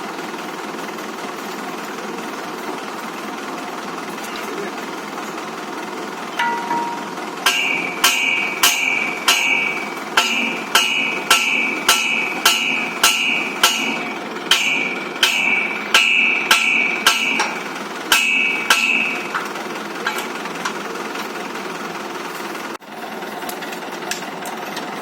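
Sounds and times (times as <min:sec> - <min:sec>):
hammer blows on metal: 0:06.4 - 0:19.4.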